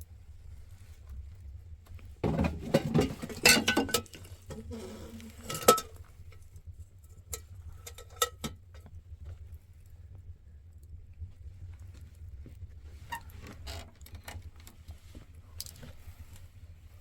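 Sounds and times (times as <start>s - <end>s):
objects rustling and clattering: 1.9s - 6.4s, 11.8s - 17.0s
steady low rumble: 8.7s - 13.1s.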